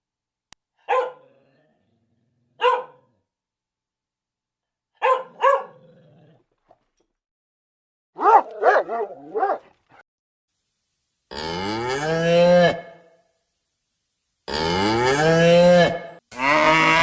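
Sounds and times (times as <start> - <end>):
dog barking: 0.8 - 1.4, 2.6 - 3.2, 5.0 - 5.9, 8.2 - 10.0
cow mooing: 11.3 - 13.0, 14.5 - 17.0.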